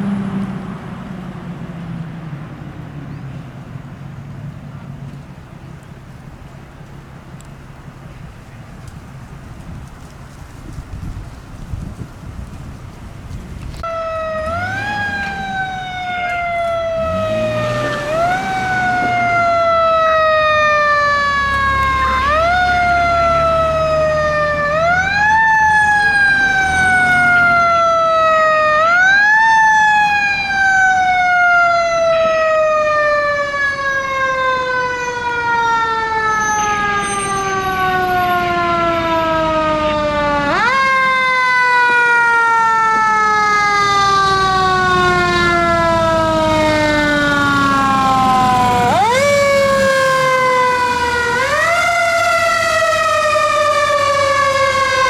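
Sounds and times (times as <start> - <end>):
low engine rumble: 0.0 - 55.0
mechanical siren winding up and down: 13.8 - 39.3.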